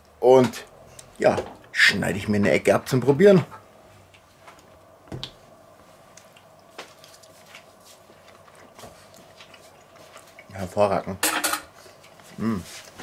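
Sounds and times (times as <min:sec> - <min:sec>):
person quietly chewing: 0:05.8 - 0:10.7, 0:11.8 - 0:13.0.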